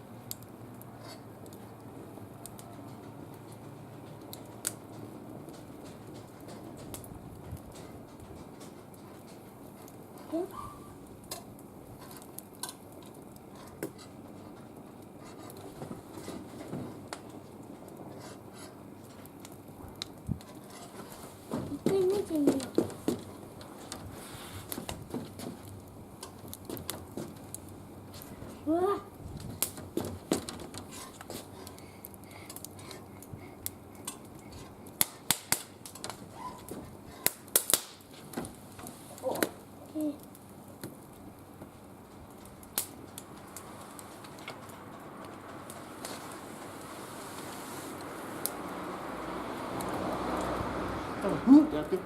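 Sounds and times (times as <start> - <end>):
wood fire crackling: 0.0 - 52.0
low steady hiss: 9.3 - 52.0.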